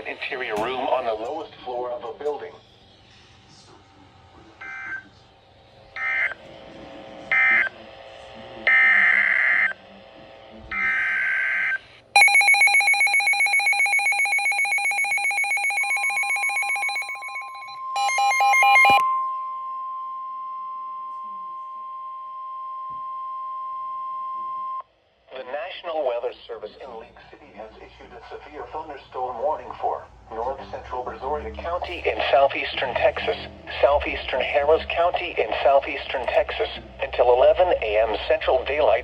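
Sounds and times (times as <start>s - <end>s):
pulsing electronic alarm tone: 10.8s - 19.3s.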